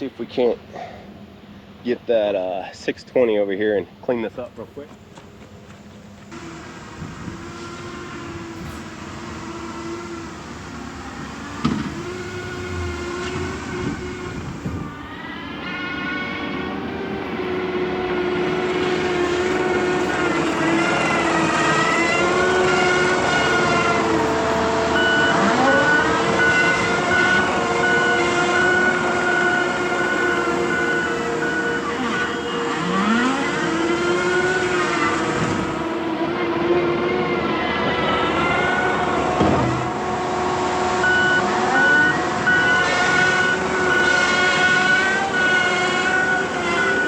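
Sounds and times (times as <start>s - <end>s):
diesel engine revving under load: 6.3s - 47.0s
steady beeps: 24.9s - 32.5s.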